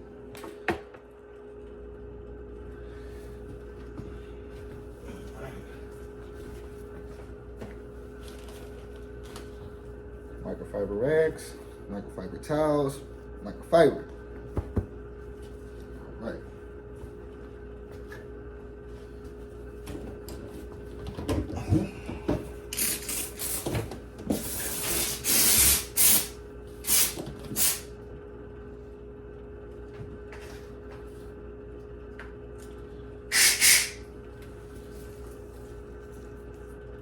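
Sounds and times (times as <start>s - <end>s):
steady low hum: 0.0s - 37.0s
steam cleaner hissing spurts: 22.7s - 27.9s, 33.3s - 34.0s.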